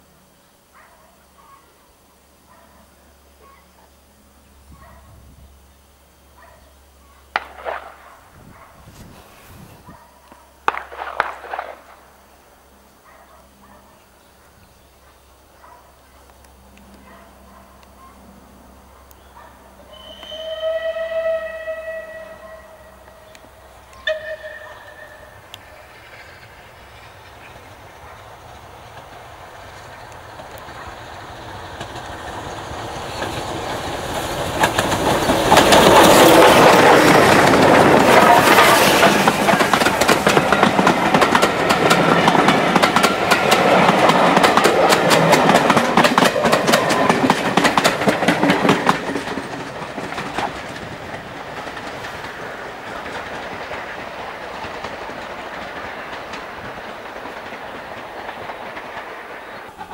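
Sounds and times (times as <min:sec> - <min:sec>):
steam locomotive passing: 0:00.0 - 0:59.9
wheels clattering over rail joints: 0:23.1 - 0:59.9.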